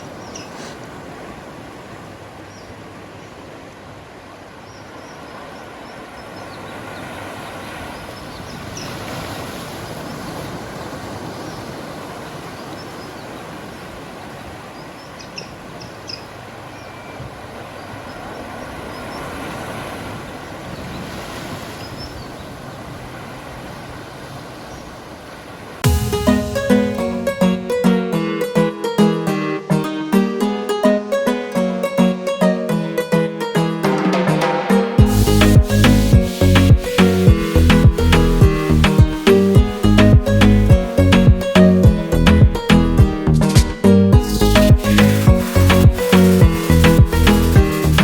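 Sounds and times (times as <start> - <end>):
small birds chirping: 0.0 - 0.8, 4.6 - 9.1, 12.4 - 14.0, 14.7 - 19.4, 20.2 - 22.9
sea surf washing onto beach: 0.0 - 28.2, 33.8 - 42.1, 43.1 - 48.0.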